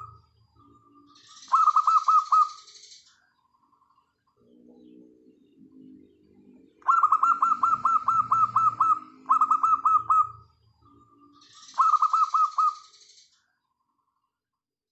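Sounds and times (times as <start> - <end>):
doves cooing softly: 6.8 - 10.4.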